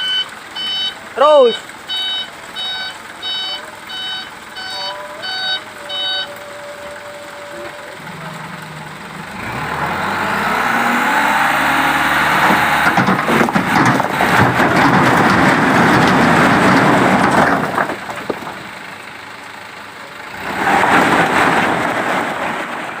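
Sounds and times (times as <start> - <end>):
truck engine revving: 0.0 - 23.0
stones sliding out clattering: 12.4 - 18.7, 20.5 - 23.0.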